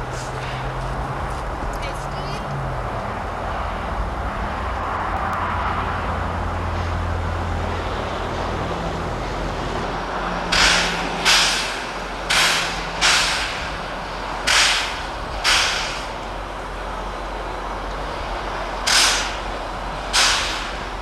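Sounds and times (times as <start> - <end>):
steam locomotive chuffing: 0.0 - 1.2, 3.4 - 21.0
low rumble: 2.6 - 16.4.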